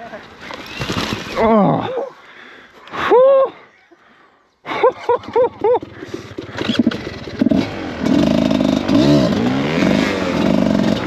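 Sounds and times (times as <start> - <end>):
dirt bike engine revving: 5.6 - 11.0.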